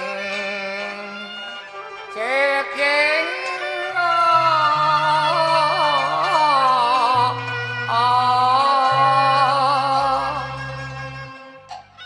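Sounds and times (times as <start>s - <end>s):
opera singing with vibrato: 0.0s - 11.6s
low bass notes: 4.2s - 11.9s.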